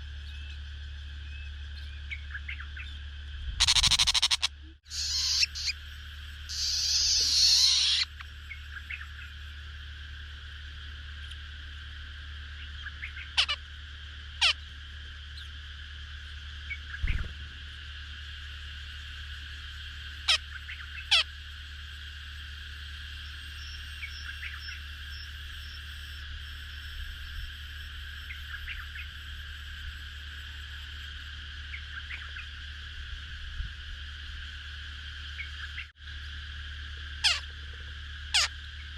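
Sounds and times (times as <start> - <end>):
low hum: 0.0 - 38.9
sharp downward-sweeping calls: 3.6 - 5.8, 6.5 - 8.2.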